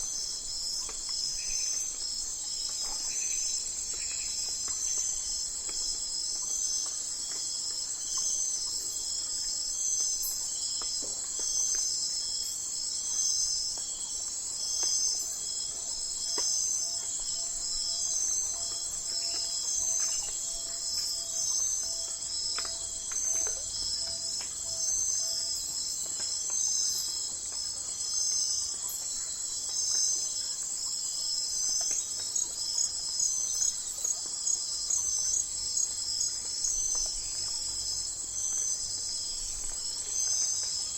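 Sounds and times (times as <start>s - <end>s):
crickets trilling: 0.1s - 40.9s
fast pulsed insect call: 14.6s - 25.6s.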